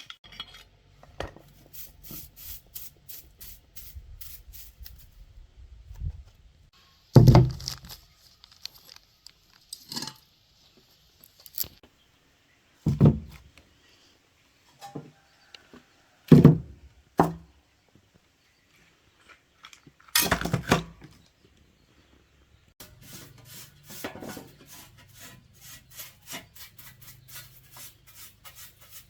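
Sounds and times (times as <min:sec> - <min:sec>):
metal parts scraping and rattling: 0:00.0 - 0:01.6, 0:07.2 - 0:10.3, 0:11.2 - 0:11.8.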